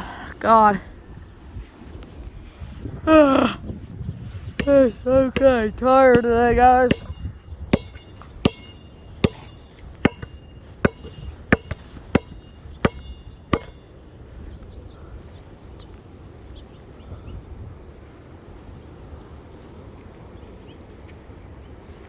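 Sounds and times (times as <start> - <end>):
sharp knocks with high ring: 4.6 - 13.9.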